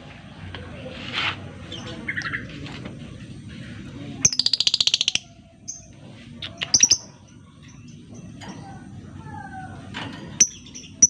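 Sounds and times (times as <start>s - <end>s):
lovebird chattering trill: 4.2s - 7.2s.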